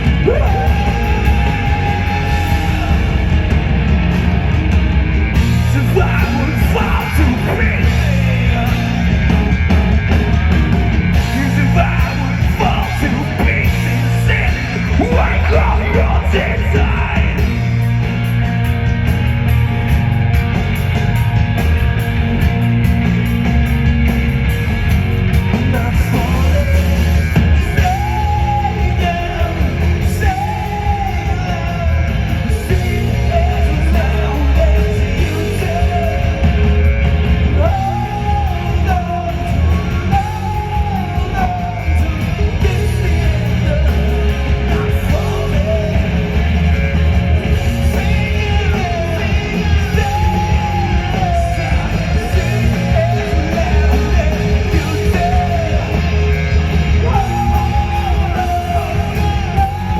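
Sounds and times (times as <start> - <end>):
person singing and shouting: 0.0 - 3.4, 5.6 - 9.1, 11.2 - 17.7, 25.7 - 59.9
drums: 0.0 - 59.9
guitars: 0.0 - 59.9.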